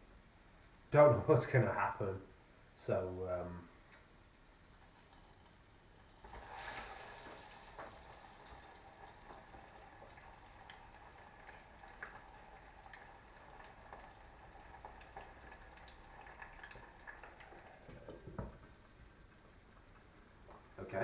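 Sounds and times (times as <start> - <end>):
chicken sizzling in hot oil: 4.6 - 18.5.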